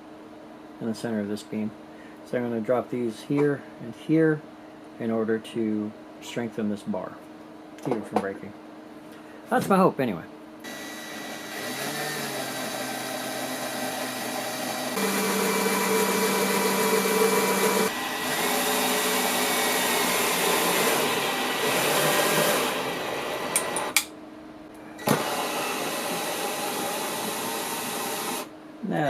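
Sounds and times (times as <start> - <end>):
electric drill whirring: 10.6 - 24.0, 25.0 - 28.5
drill clicks: 10.6 - 24.1, 25.0 - 28.5.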